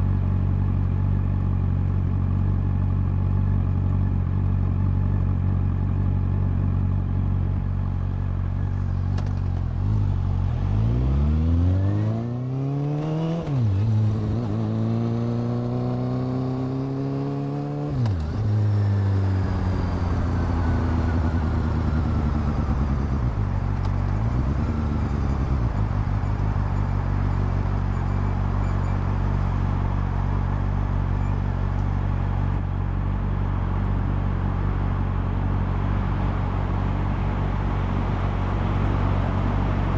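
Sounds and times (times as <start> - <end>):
motorcycle engine revving: 9.1 - 32.2.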